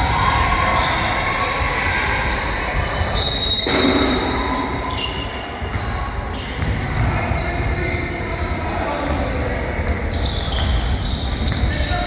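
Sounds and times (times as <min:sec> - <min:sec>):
crowd noise: 0:00.0 - 0:12.0
sharp hit: 0:03.7 - 0:04.9
basketball bouncing: 0:03.7 - 0:07.4.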